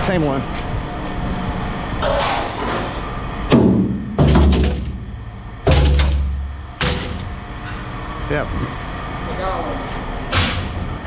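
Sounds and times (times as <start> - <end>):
scrap metal clanging into bin: 4.2 - 5.1, 5.7 - 7.4.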